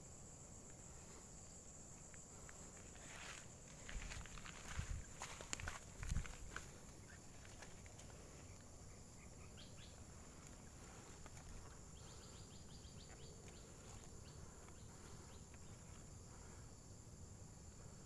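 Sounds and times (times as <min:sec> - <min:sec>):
steady high hiss: 0:00.0 - 0:18.0
soft chirps: 0:06.7 - 0:16.7.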